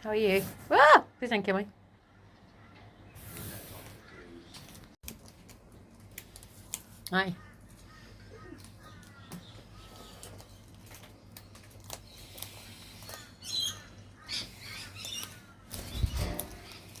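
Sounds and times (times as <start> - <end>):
birds squawking and chirping: 1.2 - 4.9, 7.4 - 10.8, 12.1 - 17.0.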